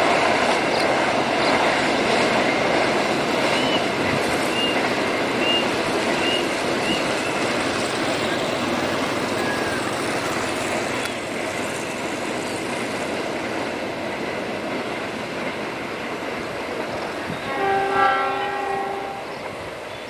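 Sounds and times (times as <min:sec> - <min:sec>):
freight train rumbling on rails: 0:00.0 - 0:20.0
train horn: 0:17.3 - 0:19.6.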